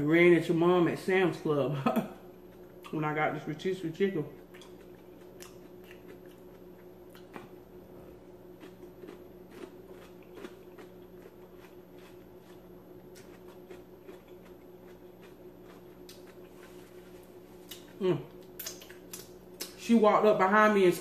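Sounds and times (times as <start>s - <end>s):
steady low hum: 0.0s - 21.0s
person chewing food: 2.3s - 3.0s, 4.3s - 19.8s
wet mouth clicks: 18.5s - 19.8s.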